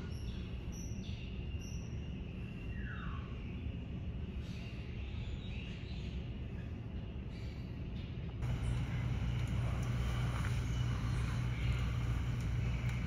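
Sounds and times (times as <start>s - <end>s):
small birds chirping: 0.0s - 13.0s
steady low rumble: 8.2s - 13.0s.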